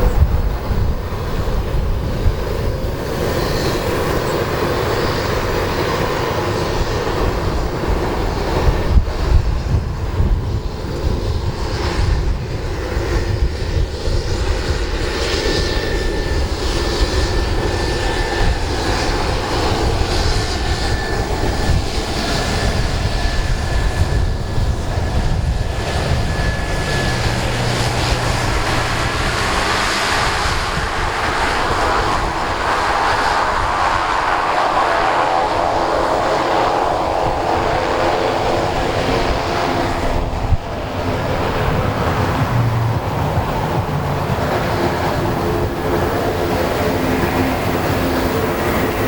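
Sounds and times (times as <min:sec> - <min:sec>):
thin engine whine: 0:00.0 - 0:49.0
turboprop engine running: 0:00.0 - 0:49.0.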